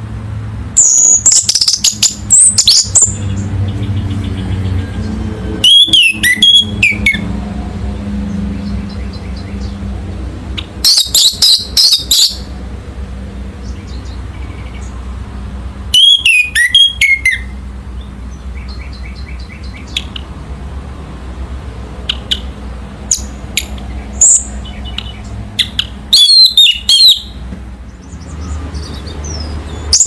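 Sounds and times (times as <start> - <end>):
thrush whistled song: 0.8 - 3.2, 5.6 - 7.2, 10.8 - 12.5, 15.9 - 17.6, 24.2 - 27.4.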